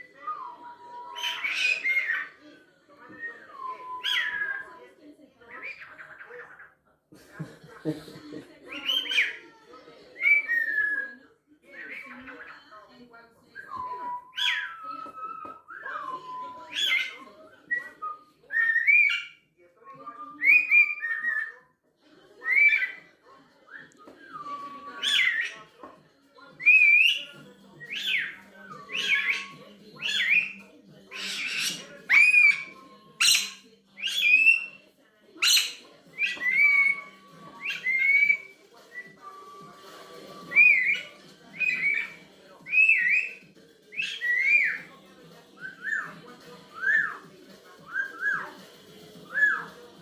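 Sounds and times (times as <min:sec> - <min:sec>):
parrot whistling: 0:00.0 - 0:02.3, 0:03.2 - 0:04.7, 0:13.6 - 0:19.4, 0:20.0 - 0:21.6, 0:23.7 - 0:25.7, 0:26.6 - 0:34.8, 0:35.4 - 0:45.0, 0:45.6 - 0:47.3, 0:47.9 - 0:48.6, 0:49.2 - 0:49.8.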